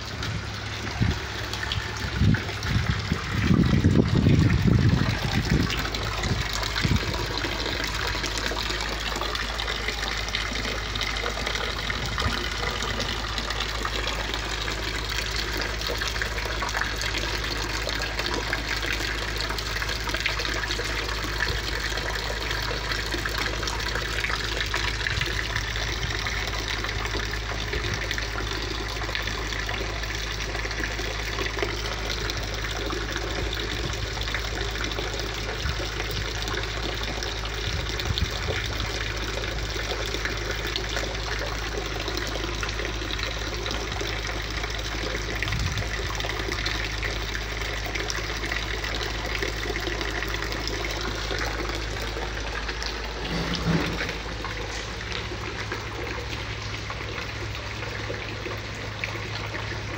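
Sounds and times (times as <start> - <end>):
rain falling on concrete: 0.0 - 59.9.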